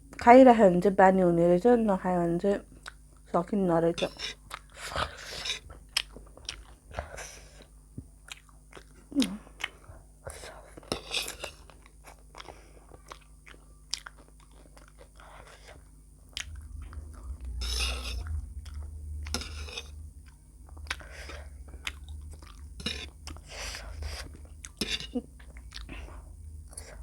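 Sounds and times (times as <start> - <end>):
person chewing food: 2.7 - 3.3, 4.0 - 27.0
low rumble: 16.1 - 27.0.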